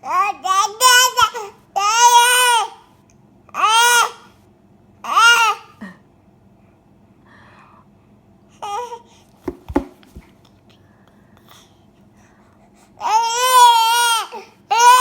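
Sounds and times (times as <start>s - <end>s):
short knocks: 9.4s - 10.3s.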